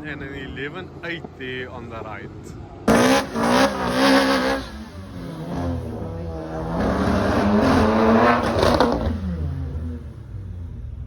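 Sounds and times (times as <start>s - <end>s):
drag racing cars revving: 2.3s - 11.0s.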